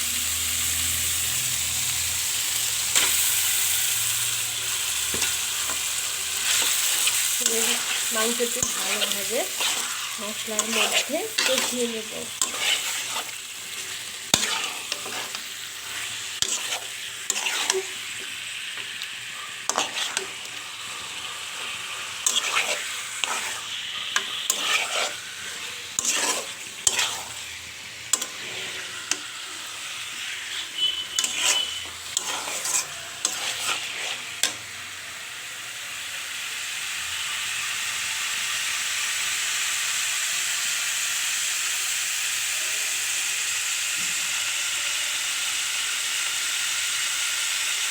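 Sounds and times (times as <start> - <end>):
chicken sizzling in hot oil: 0.0 - 47.9
spoon scraping a pan: 2.6 - 34.7.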